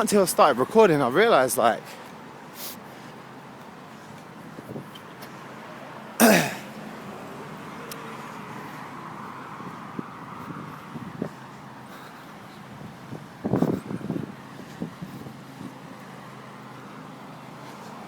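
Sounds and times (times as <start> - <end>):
road traffic: 0.0 - 18.0
man clearing his throat: 6.2 - 6.7.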